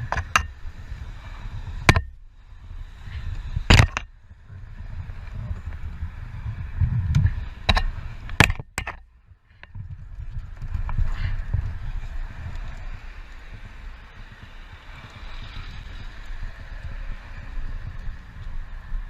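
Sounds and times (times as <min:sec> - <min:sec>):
moving vehicle rumble: 0:00.0 - 0:19.0
sharp knocks: 0:01.9 - 0:02.2, 0:03.7 - 0:04.1, 0:07.7 - 0:09.0.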